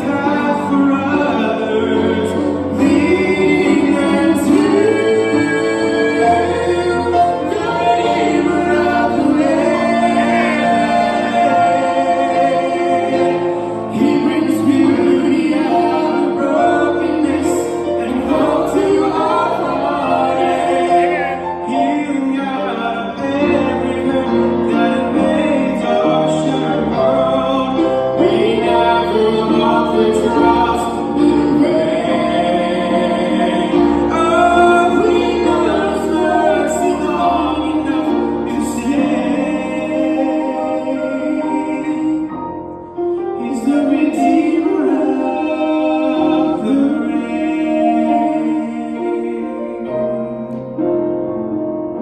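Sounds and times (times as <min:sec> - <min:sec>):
choir singing gospel song: 0:00.0 - 0:50.8
instrumental accompaniment: 0:00.0 - 0:52.0.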